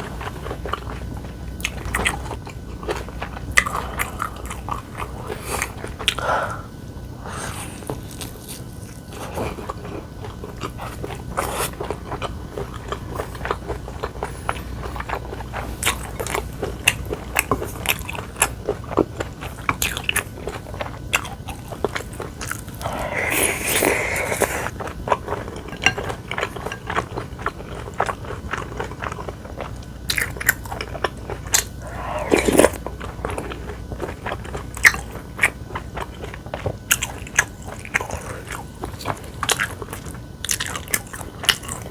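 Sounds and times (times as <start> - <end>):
person chewing and crunching: 0.0 - 41.9
wet mouth clicks: 22.8 - 24.7, 31.6 - 32.8.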